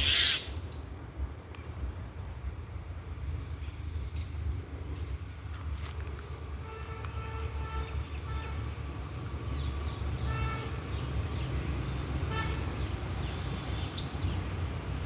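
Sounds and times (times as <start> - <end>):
birds nasal calls: 0.0 - 0.6.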